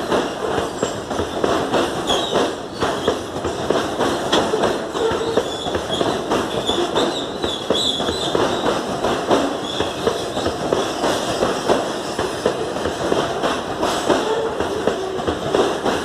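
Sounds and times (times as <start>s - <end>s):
wheels clattering over rail joints: 0.0s - 16.0s
high wheel squeal: 4.5s - 8.7s.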